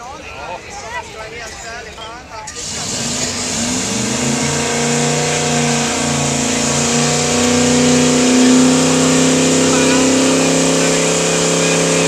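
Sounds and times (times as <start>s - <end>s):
car engine revving hard: 2.6s - 12.0s.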